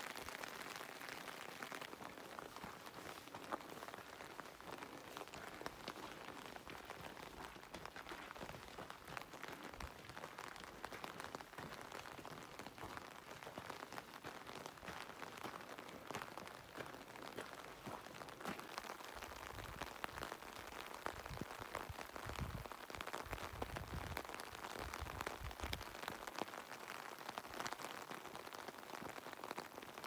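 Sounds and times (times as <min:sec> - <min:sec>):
light rain pattering: 0:00.0 - 0:30.0.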